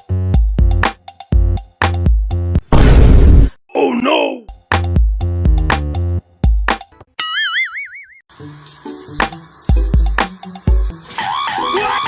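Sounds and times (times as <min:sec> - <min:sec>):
music with deep plucked notes: 0:00.0 - 0:02.6, 0:04.5 - 0:07.0, 0:09.2 - 0:10.9
cartoon boing sound effect: 0:07.2 - 0:08.2.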